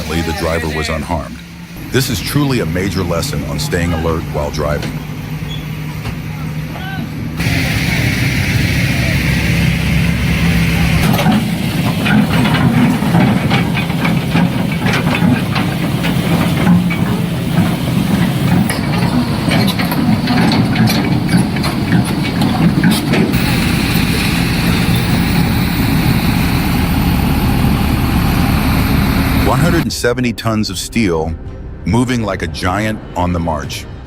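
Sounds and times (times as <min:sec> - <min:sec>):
heavy vehicle engine running: 0:00.0 - 0:29.9
knocks and clanks: 0:10.3 - 0:29.8.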